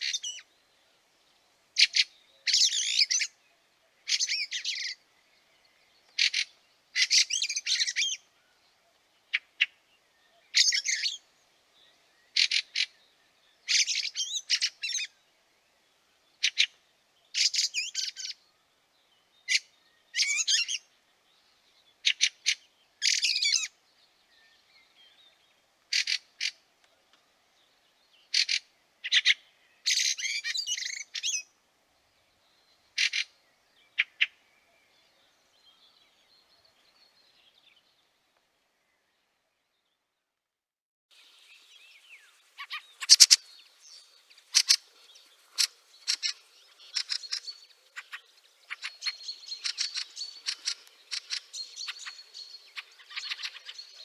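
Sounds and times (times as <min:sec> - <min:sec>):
birds chattering calls: 0:32.8 - 0:35.9, 0:41.2 - 0:54.0.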